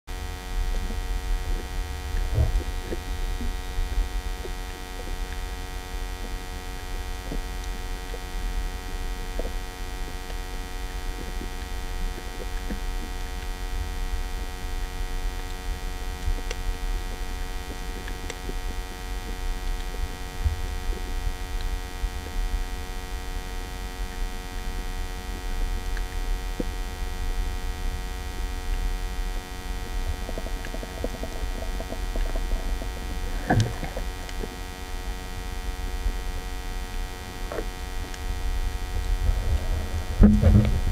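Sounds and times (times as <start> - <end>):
faint steady hum: 0.1 - 40.9
muffled underwater rumble: 0.1 - 40.9.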